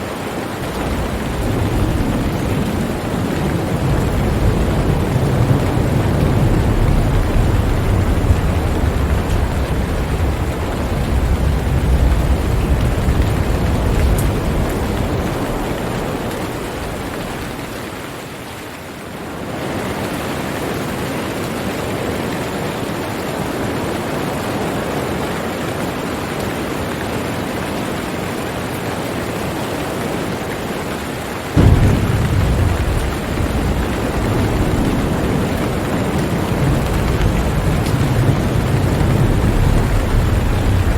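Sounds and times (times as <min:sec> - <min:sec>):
thunder rumbling: 0:00.0 - 0:18.0, 0:31.6 - 0:40.9
rain hiss: 0:00.0 - 0:40.9.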